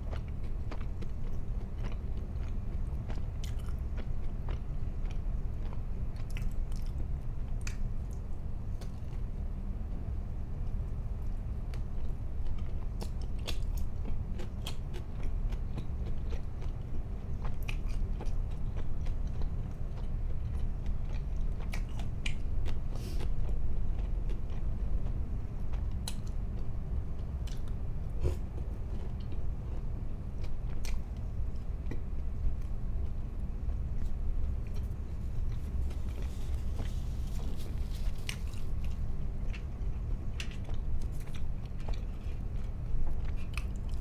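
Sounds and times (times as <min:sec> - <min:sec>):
person chewing crunchy food: 0:00.0 - 0:07.8, 0:27.4 - 0:44.0
steady low hum: 0:00.0 - 0:44.0.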